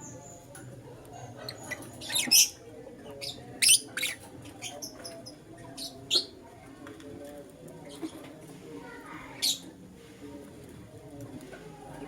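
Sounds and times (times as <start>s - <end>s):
lovebirds chirping and squawking: 1.4s - 6.3s.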